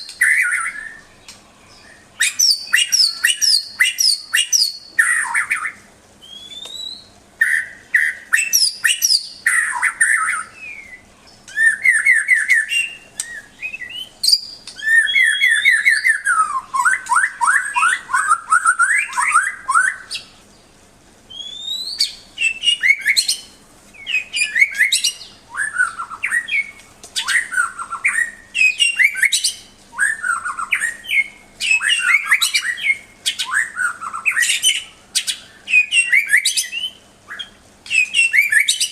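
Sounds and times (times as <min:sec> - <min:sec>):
songbird singing varied song: 0:00.0 - 0:38.9.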